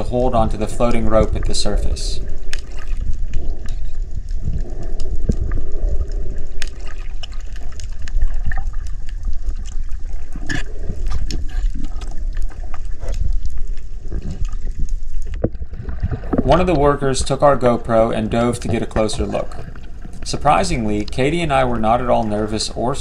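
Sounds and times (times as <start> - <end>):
water sloshing underwater rumble: 0.0 - 23.0
sharp clicks and pops: 2.4 - 16.9.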